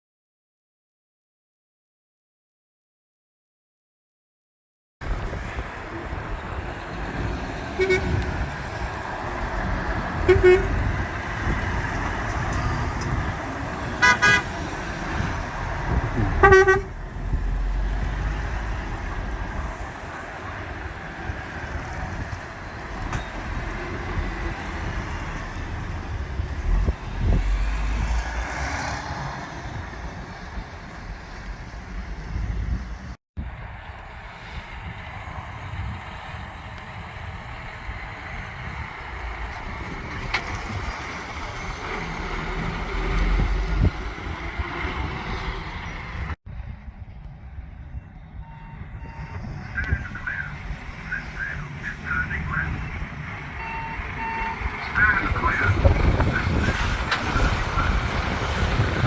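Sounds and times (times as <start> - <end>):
heavy trucks driving past: 5.0 - 59.0
lorry engine running: 35.0 - 59.0
reversing alarm beeps: 53.6 - 54.7.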